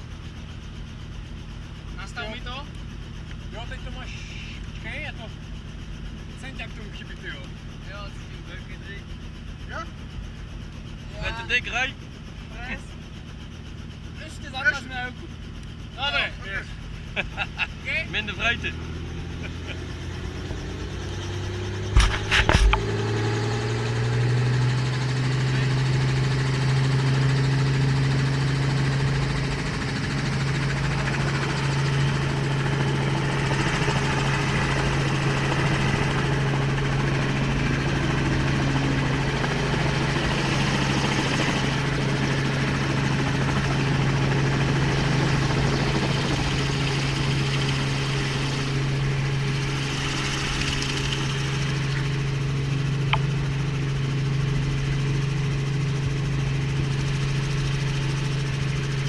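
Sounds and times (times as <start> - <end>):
helicopter drone: 0.0 - 59.0.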